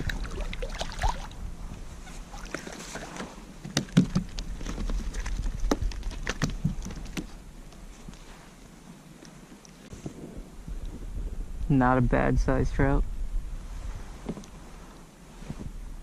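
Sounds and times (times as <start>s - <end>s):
water splashes: 0.0s - 1.4s, 2.2s - 3.9s
knocks and clicks on a kayak: 3.2s - 7.4s.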